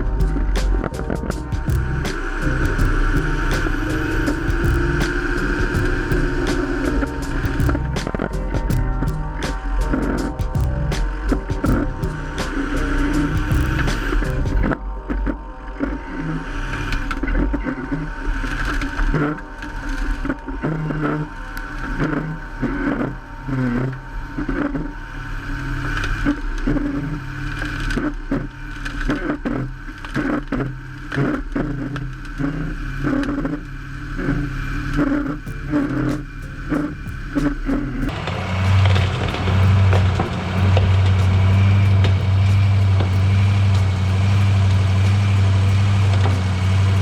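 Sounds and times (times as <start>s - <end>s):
diesel truck running: 0.0s - 14.7s, 35.5s - 47.0s
car bodies crunching: 36.2s - 47.0s.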